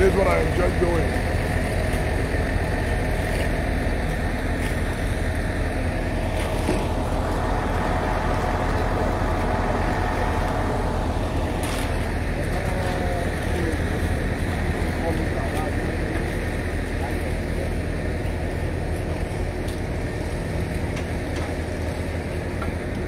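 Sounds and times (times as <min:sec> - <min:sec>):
traffic noise: 0:00.0 - 0:17.0
vehicle engine rumble: 0:00.0 - 0:23.0.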